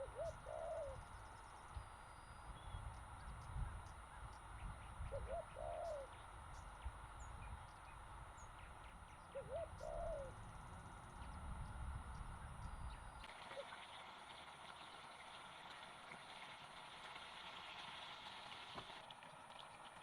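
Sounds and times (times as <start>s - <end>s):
dove cooing: 0.0s - 1.4s, 3.0s - 11.4s
steady low rumble: 0.0s - 13.3s.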